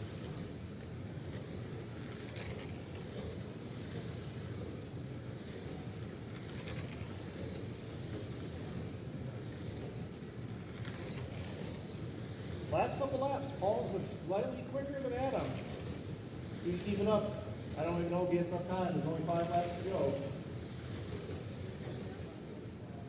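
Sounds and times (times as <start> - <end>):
rc truck motors whining: 0.0 - 23.0.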